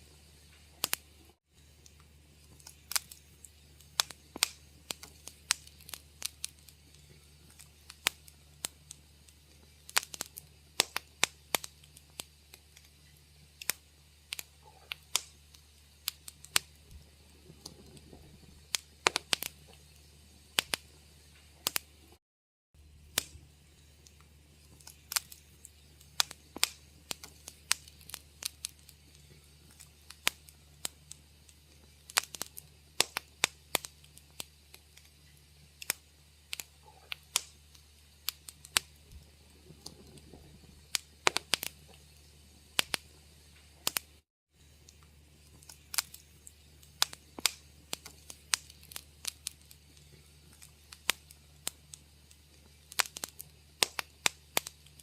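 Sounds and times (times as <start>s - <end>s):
low steady hum: 0.0s - 22.2s, 22.8s - 55.0s
wood fire crackling: 0.0s - 22.2s, 22.8s - 55.0s.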